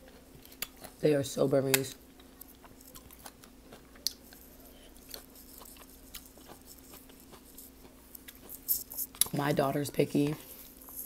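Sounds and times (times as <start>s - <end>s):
chewing crunches: 0.0s - 1.0s, 1.7s - 9.4s.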